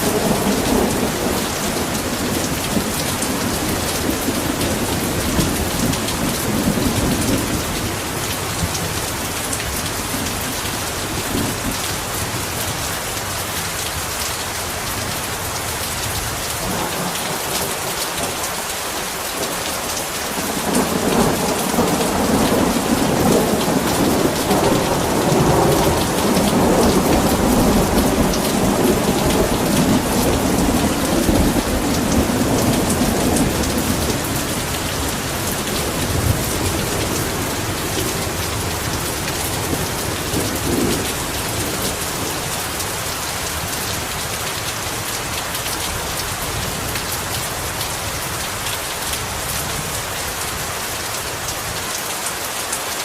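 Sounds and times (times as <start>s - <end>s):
rolling thunder rumble: 0.0s - 12.8s, 19.4s - 45.0s
heavy rain falling: 0.0s - 53.0s.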